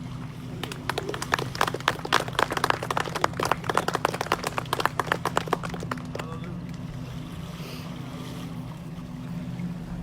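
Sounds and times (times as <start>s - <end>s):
crowd clapping: 0.6s - 6.9s.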